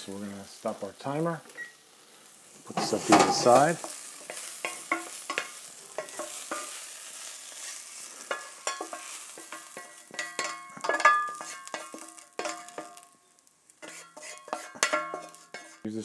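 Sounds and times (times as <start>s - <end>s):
vegetables sizzling in a pan: 0.0s - 15.9s
utensil scraping and stirring: 2.7s - 15.9s
utensil clinking against pan: 2.8s - 6.8s, 8.2s - 13.1s, 13.8s - 15.8s.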